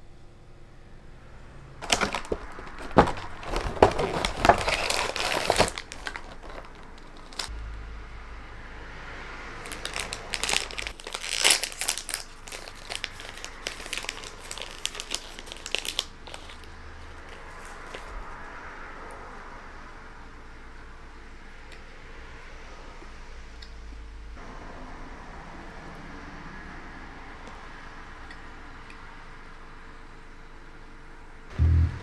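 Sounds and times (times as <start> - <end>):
wrapping crinkling: 1.8 - 7.5, 9.6 - 18.4.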